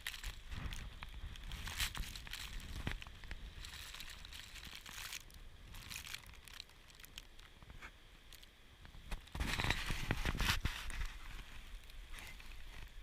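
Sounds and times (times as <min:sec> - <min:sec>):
footsteps crunching through snow: 0:00.0 - 0:06.4.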